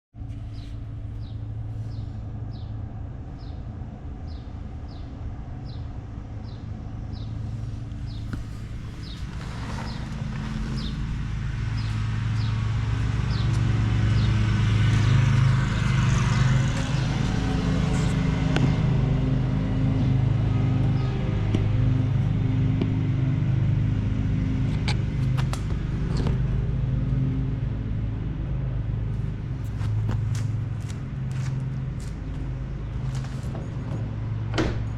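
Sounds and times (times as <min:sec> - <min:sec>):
car engine idling: 0:00.8 - 0:26.0.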